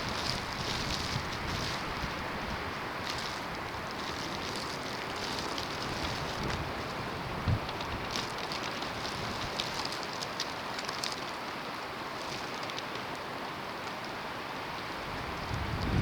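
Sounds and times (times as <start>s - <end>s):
hiss of wind-driven snow: 0.0s - 8.1s, 13.3s - 16.0s.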